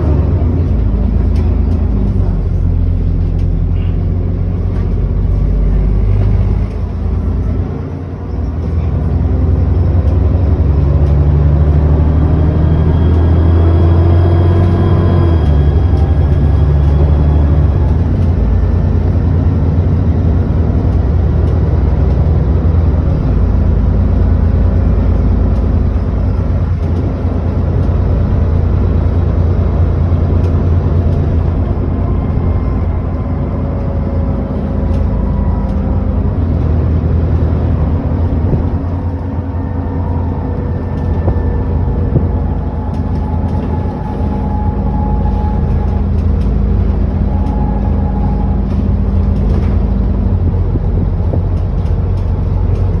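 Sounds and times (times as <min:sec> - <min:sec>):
bus engine droning: 0:00.0 - 0:53.0
thin whine rising in pitch: 0:10.6 - 0:18.3, 0:30.0 - 0:50.2.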